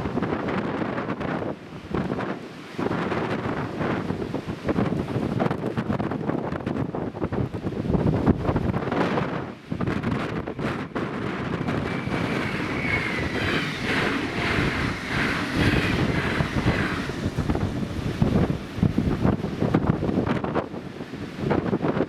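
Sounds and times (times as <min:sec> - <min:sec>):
wind buffeting microphone: 0:00.0 - 0:22.0
electric train passing: 0:08.8 - 0:20.5.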